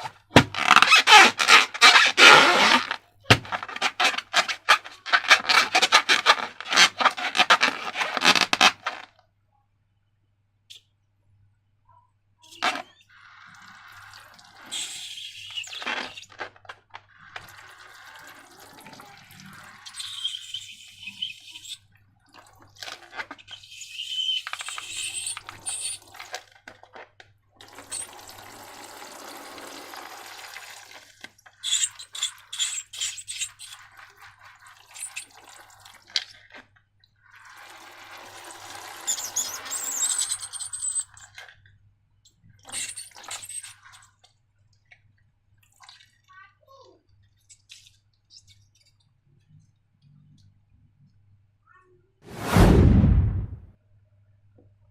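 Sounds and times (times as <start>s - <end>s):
slime pouring and squishing: 13.2s - 20.2s.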